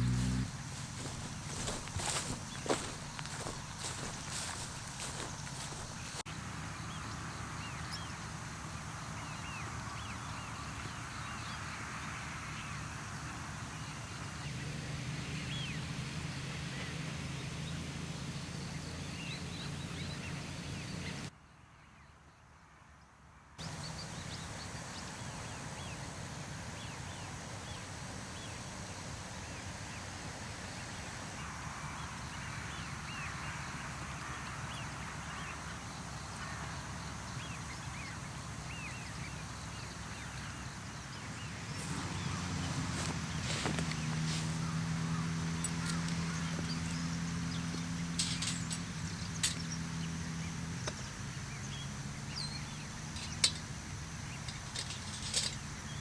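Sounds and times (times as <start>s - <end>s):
background hiss: 0.0s - 6.2s
low hum: 0.0s - 6.2s.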